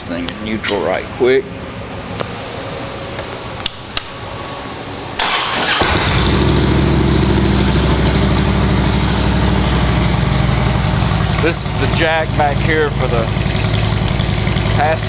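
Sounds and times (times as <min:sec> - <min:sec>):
starter cranking: 0:05.2 - 0:15.0
motorcycle engine idling: 0:05.6 - 0:15.0.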